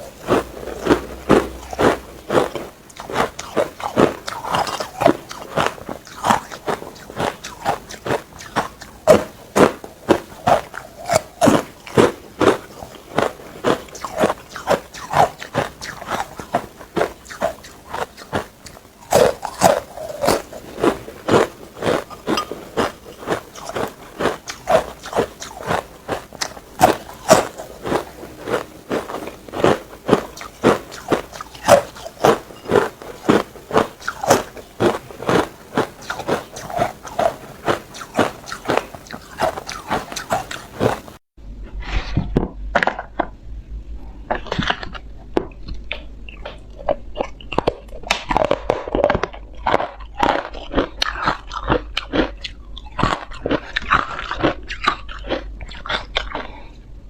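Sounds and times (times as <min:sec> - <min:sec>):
ice being chewed: 0:00.0 - 0:41.2, 0:44.3 - 0:56.8
low hum: 0:24.8 - 0:46.8.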